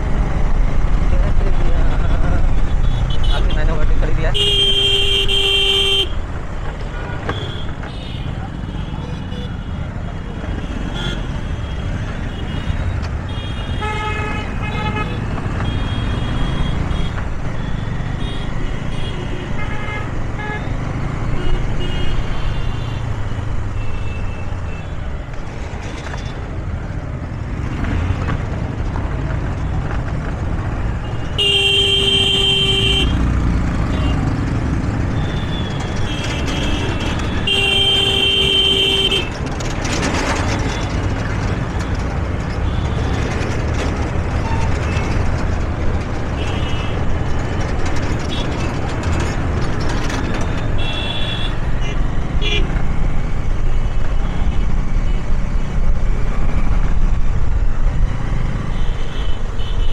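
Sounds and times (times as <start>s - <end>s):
traffic engine rumble: 0.0s - 59.9s
vehicle horn honking: 4.4s - 6.1s, 31.3s - 33.2s, 35.2s - 39.3s.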